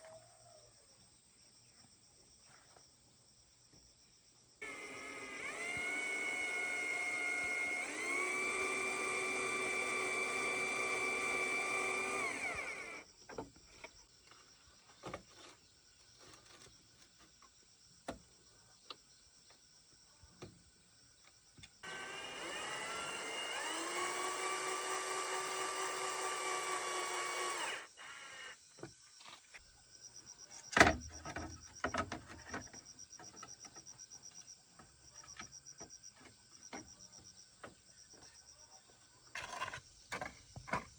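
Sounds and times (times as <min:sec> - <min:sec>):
cordless drill whining: 0:04.6 - 0:13.1, 0:21.8 - 0:28.6.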